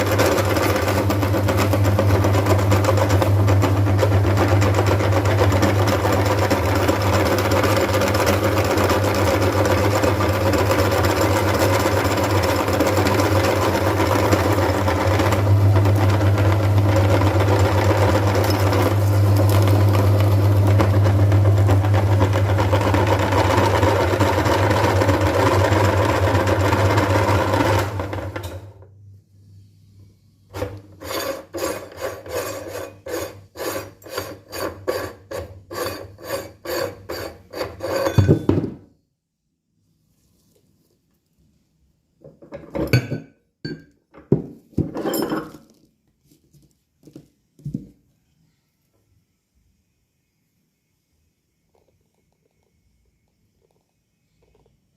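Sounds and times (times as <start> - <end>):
electric meat grinder motor humming: 0.0 - 28.5.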